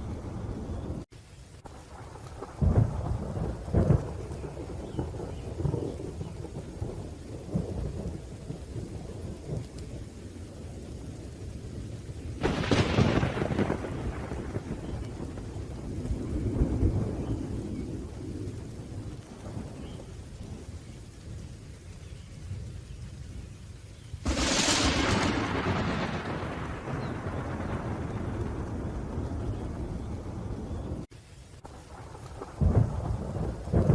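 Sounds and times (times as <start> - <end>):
rain: 0.0 - 33.9
thunder rumbling: 0.0 - 33.9
sharp crack of thunder: 1.7 - 9.9, 12.3 - 20.7, 24.2 - 31.1, 31.7 - 33.9.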